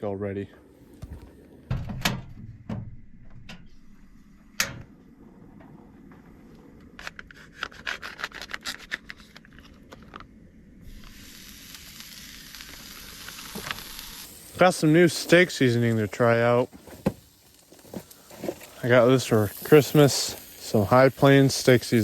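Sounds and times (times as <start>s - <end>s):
steak sizzling in hot pan: 10.9s - 16.6s, 18.6s - 22.0s.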